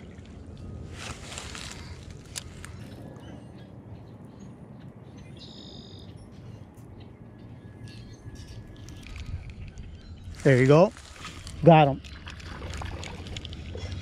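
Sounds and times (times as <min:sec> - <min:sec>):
high chirping bird call: 0:02.6 - 0:10.6
wind rumble on microphone: 0:06.2 - 0:14.0.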